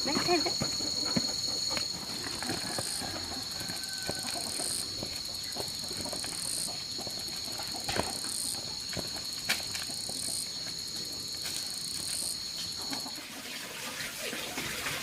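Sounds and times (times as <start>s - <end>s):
fast pulsing insect trill: 0.0s - 13.6s
insects droning: 0.0s - 15.0s.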